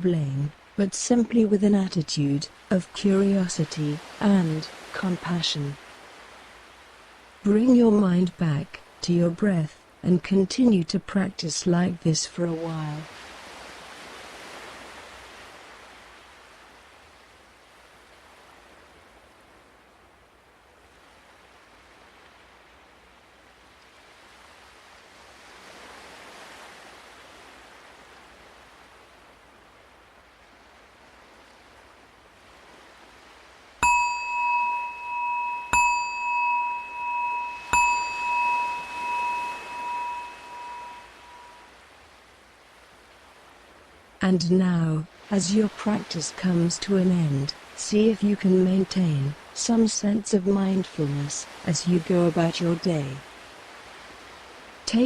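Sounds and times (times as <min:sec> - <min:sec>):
wave washing in: 0:32.4 - 0:41.6
meditation bell ringing: 0:33.8 - 0:41.7.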